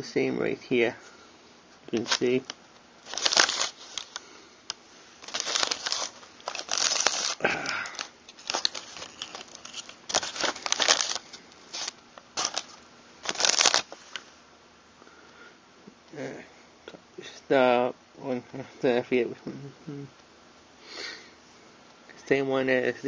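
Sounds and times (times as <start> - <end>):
rustling handling noise: 1.0 - 14.4.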